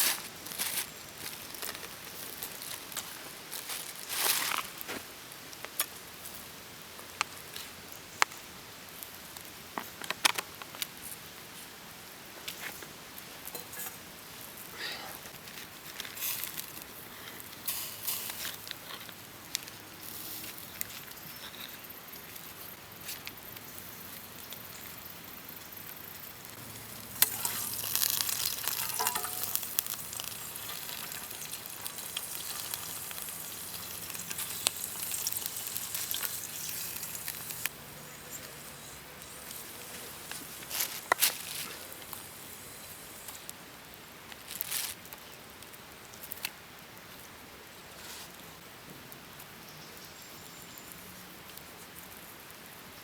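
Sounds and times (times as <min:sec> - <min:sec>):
food sizzling in a pan: 0:25.7 - 0:43.5.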